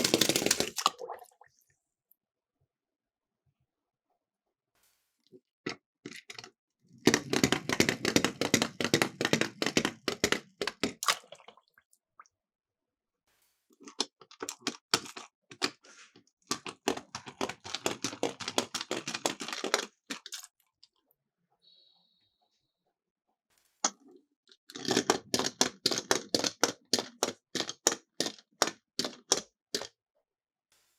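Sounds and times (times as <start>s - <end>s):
toy cars clattering down track: 0.0s - 0.8s, 7.1s - 11.0s.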